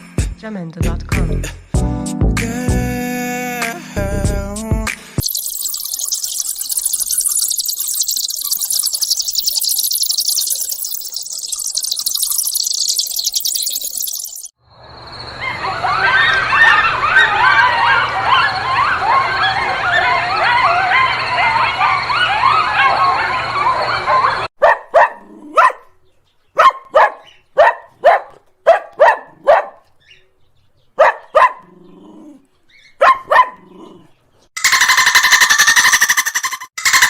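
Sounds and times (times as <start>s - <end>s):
high squealing calls: 5.2s - 14.5s, 34.6s - 37.0s
dog barking: 15.4s - 25.9s, 26.6s - 29.9s, 31.0s - 31.7s, 33.0s - 33.7s.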